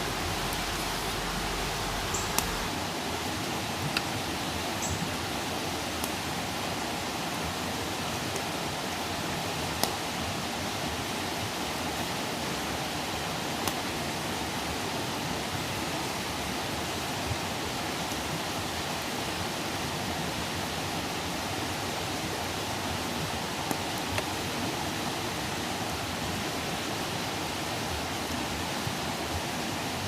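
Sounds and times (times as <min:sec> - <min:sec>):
fire crackling pops: 0:00.0 - 0:02.7, 0:09.8 - 0:10.0
hiss of flames: 0:00.0 - 0:02.7.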